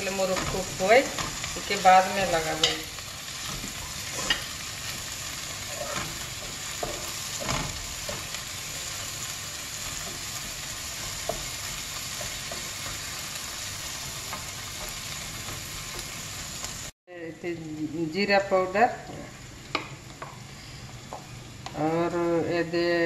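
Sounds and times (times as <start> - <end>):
spatula scraping pan: 0.0 - 16.4
vegetables sizzling in hot oil: 0.0 - 17.0.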